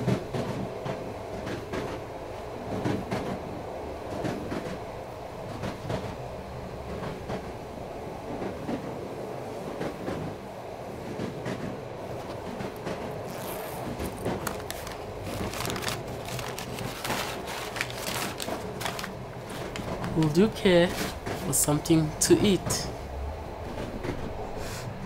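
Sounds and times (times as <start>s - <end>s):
train rumbling on rails: 0.0s - 25.0s
rail clicks and knocks: 11.0s - 22.8s, 23.6s - 24.4s.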